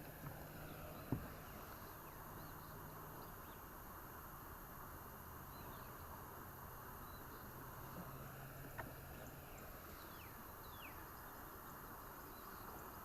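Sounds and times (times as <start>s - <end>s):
faint hiss and low hum: 0.0s - 13.0s.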